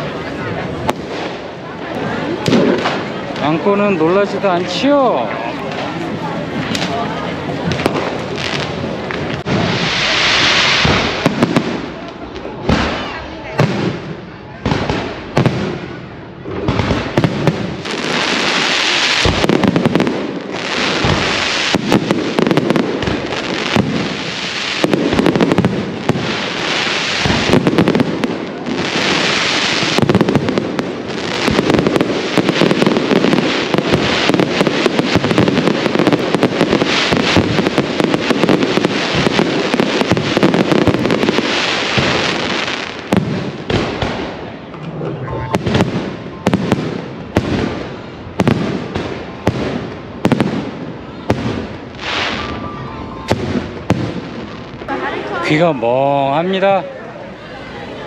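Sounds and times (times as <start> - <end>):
fireworks hissing fizz: 0.0 - 13.1, 16.8 - 44.4
firecrackers banging: 0.0 - 56.8.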